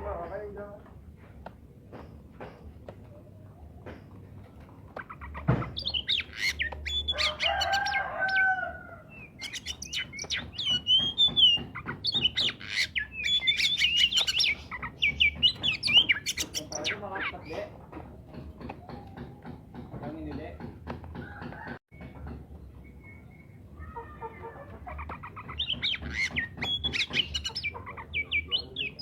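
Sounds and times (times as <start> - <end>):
bird singing whistles and chirps: 5.7 - 17.6, 22.7 - 23.7, 25.5 - 29.0.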